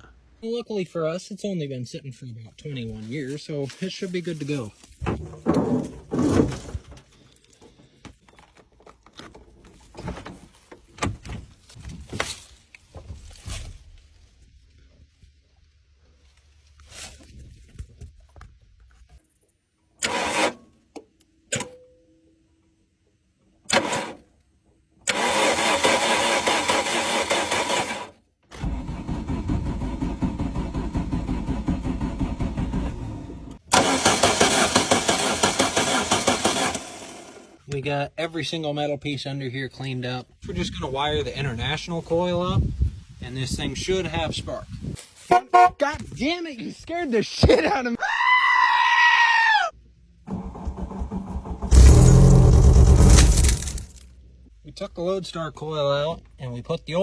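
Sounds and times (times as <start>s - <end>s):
car engine cranking without starting: 20.0s - 20.7s, 23.6s - 24.4s, 25.0s - 37.6s, 50.1s - 54.4s
rustling handling noises: 44.7s - 45.3s.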